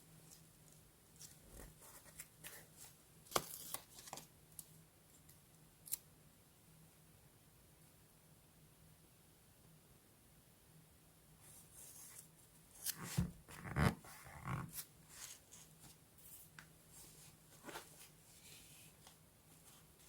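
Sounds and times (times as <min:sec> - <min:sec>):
paper rustling: 0:11.8 - 0:20.0.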